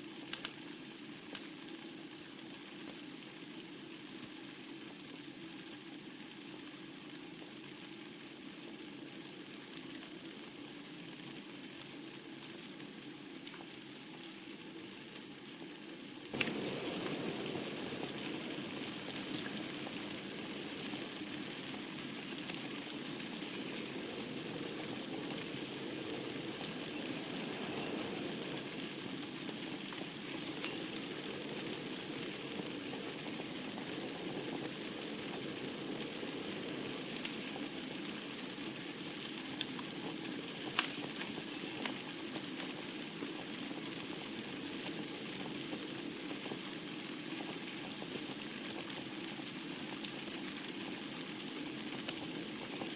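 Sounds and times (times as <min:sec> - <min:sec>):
wood fire crackling and popping: 0:00.1 - 0:01.7, 0:09.7 - 0:14.4, 0:15.0 - 0:52.9
fire hissing: 0:16.3 - 0:46.6, 0:47.3 - 0:52.9.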